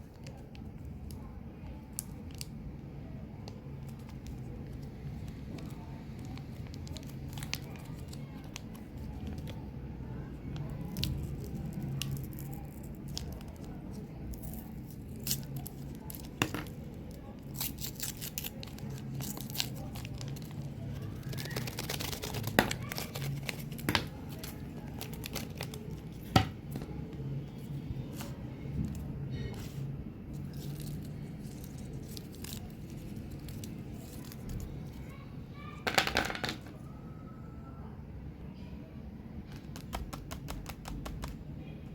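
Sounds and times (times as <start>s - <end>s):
packaging crinkling and tearing: 10.7s - 26.4s, 30.4s - 34.8s.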